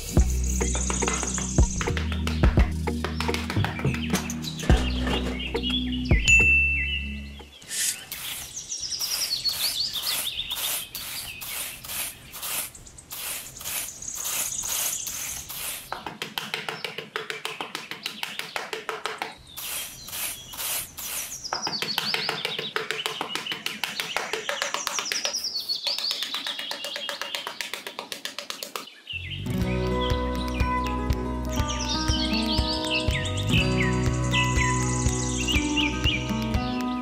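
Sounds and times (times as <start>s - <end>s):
birds chirping trills: 0.0s - 28.1s, 28.7s - 37.0s
hand trowel scraping sand: 7.7s - 16.0s, 19.5s - 21.8s.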